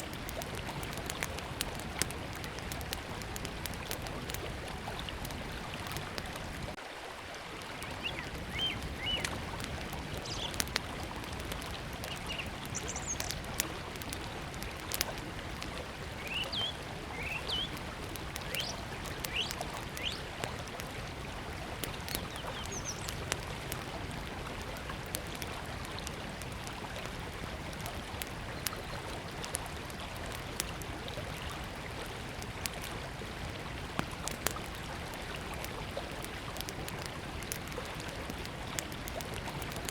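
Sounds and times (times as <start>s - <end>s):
campfire crackling and popping: 0.0s - 6.8s, 7.4s - 39.9s
small birds chirping: 7.8s - 9.4s, 10.1s - 10.8s, 11.5s - 13.6s, 16.2s - 17.8s, 18.4s - 20.3s, 22.1s - 23.3s.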